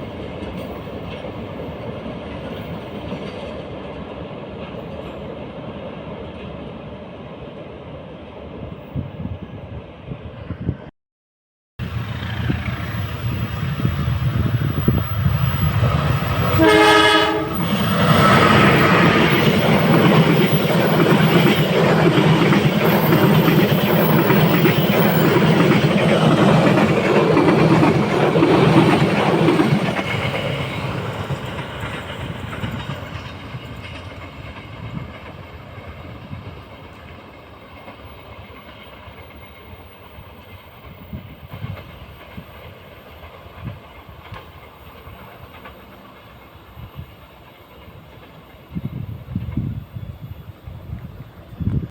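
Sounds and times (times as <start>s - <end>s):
train passing: 0.0s - 10.8s, 11.8s - 51.9s
train horn: 16.4s - 17.8s
train wheel clicks: 17.6s - 35.6s, 40.4s - 46.5s.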